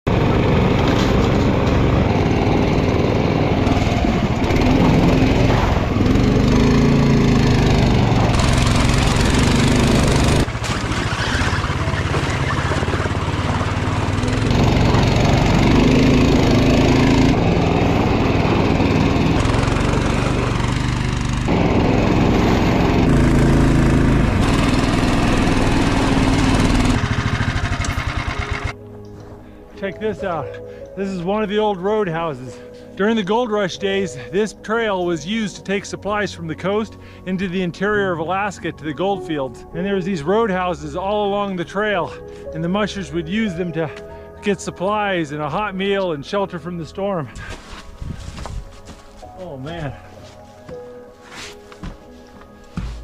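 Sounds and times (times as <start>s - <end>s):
small engine running under load: 0.1s - 28.8s.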